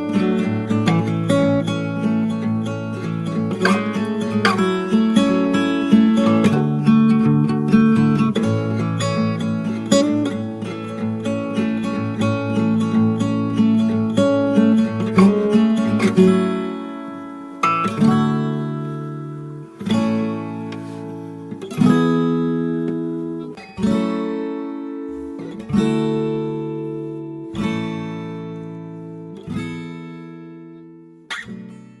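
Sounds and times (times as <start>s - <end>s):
acoustic guitar strumming chords: 0.0s - 32.0s.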